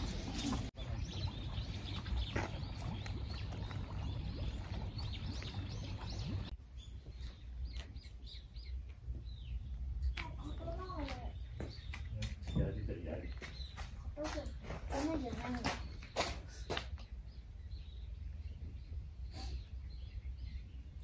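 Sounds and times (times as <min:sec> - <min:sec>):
low outdoor rumble: 0:00.0 - 0:13.3
small birds chirping: 0:00.0 - 0:21.0.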